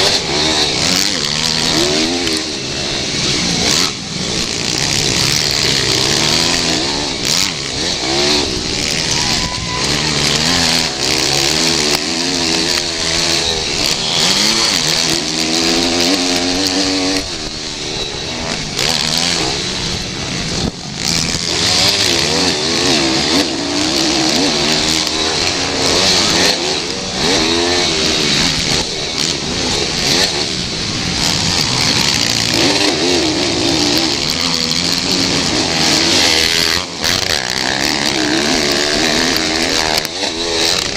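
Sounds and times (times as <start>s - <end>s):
pit bike engines revving: 0.0s - 40.9s.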